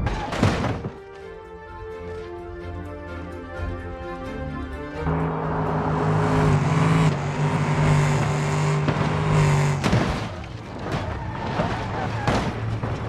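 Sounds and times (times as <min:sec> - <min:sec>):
rushing road noise: 0:04.7 - 0:13.0.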